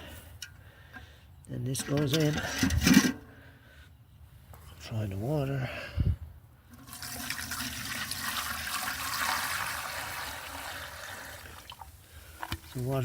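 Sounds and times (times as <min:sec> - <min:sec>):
water pouring and splashing: 0:06.8 - 0:13.0.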